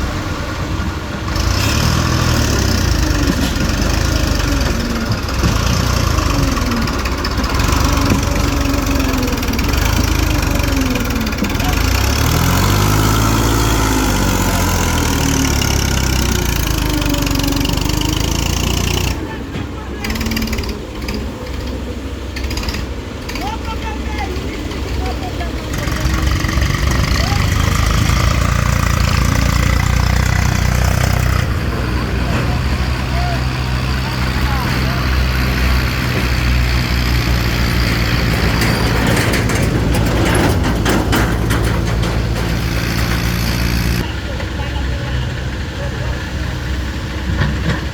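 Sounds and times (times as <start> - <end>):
diesel tractor engine running: 0.0 - 47.9
short knocks and rattles: 34.7 - 44.0.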